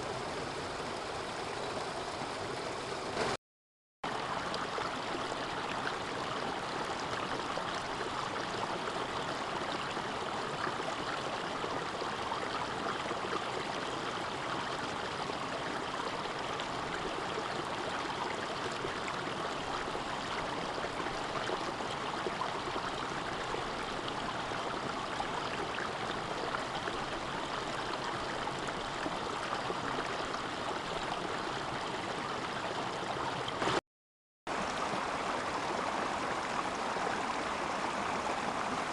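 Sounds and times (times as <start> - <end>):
mountain stream rushing: 31.3 - 33.8, 34.5 - 38.9.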